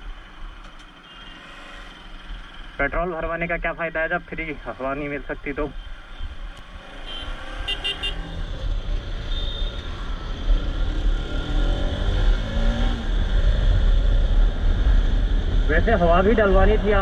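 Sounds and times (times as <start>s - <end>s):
motorcycle engine accelerating: 6.7s - 17.0s
vehicle horn toots: 7.0s - 8.2s.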